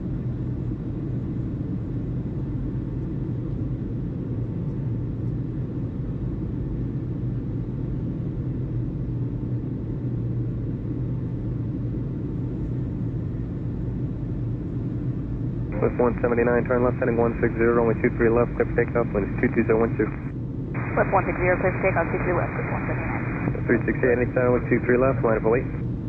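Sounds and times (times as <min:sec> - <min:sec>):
engine rumble: 0:15.7 - 0:25.8.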